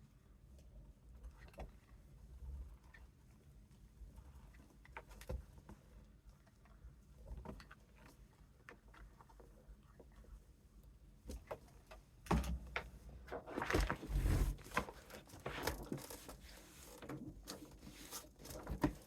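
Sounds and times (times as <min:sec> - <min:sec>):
paper and cardboard rustling: 0:13.4 - 0:19.0.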